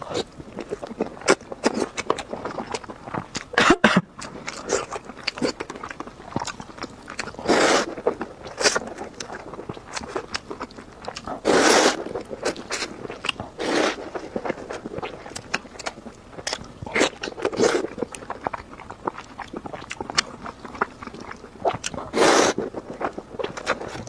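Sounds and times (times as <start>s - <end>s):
person chewing food: 0.0s - 24.0s
loud slurps: 7.4s - 8.8s, 11.4s - 13.0s, 13.6s - 14.2s, 22.1s - 22.7s.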